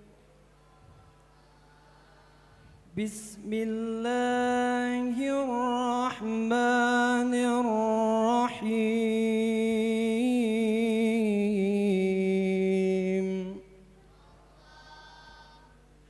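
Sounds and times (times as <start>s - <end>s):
man chanting melodically: 2.9s - 13.8s.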